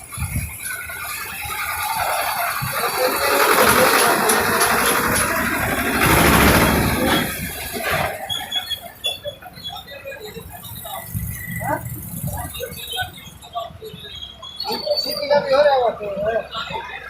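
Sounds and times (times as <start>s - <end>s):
heavy vehicle passing: 1.2s - 8.3s
squeal: 6.8s - 15.9s.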